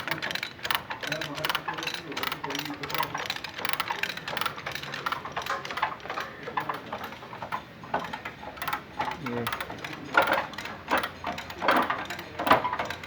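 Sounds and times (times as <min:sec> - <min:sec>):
chain and ratchet clicking: 0:00.0 - 0:13.0.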